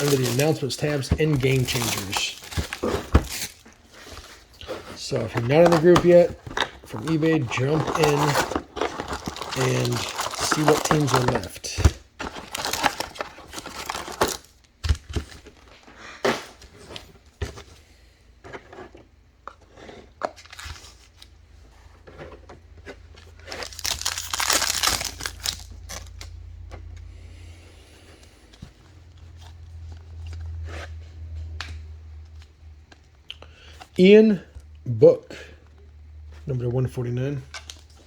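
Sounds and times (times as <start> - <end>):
foil wrappers crinkling and tearing: 0.0 - 15.4, 23.3 - 26.5.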